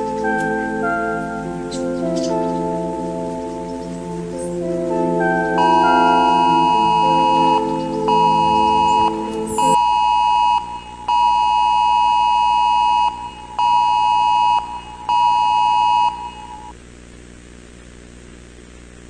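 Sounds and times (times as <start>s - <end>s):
faint static hiss: 0.0s - 9.8s.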